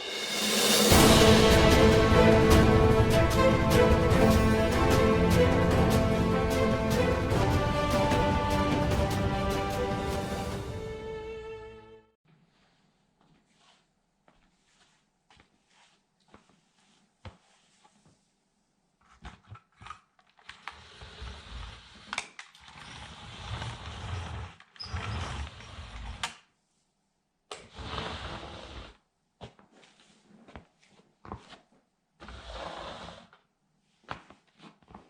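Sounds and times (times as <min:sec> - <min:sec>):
sandal scraping on toy truck: 0:20.6 - 0:26.4, 0:27.6 - 0:29.0.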